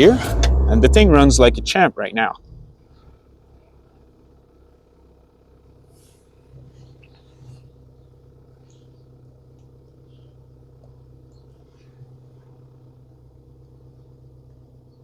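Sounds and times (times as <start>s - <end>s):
engine idling hum: 0.0s - 15.0s
small birds chirping: 6.7s - 12.9s, 13.6s - 15.0s.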